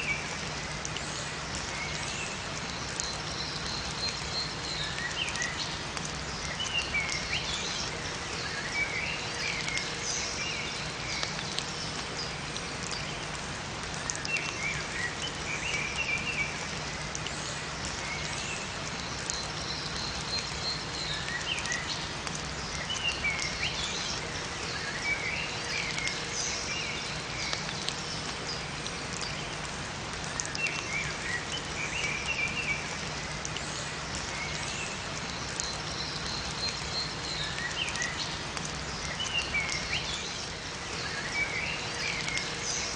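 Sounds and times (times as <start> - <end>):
rain falling in a forest: 0.0 - 42.9
small birds chirping: 30.2 - 42.9.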